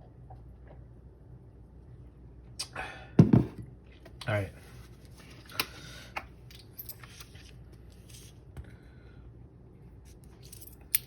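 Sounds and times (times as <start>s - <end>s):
lottery tickets and coin handled: 10.2s - 11.0s.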